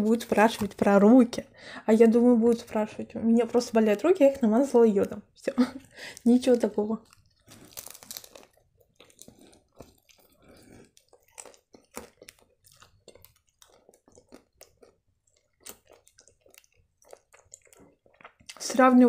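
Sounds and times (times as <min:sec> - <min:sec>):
person chewing with wet smacks: 0:05.0 - 0:18.8.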